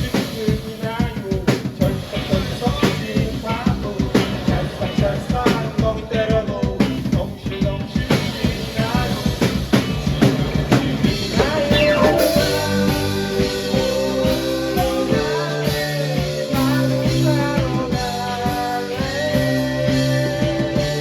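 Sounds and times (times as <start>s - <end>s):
drum kit: 0.0s - 21.0s
rock band playing: 0.0s - 21.0s
person singing: 11.4s - 21.0s
held guitar notes: 11.7s - 14.2s.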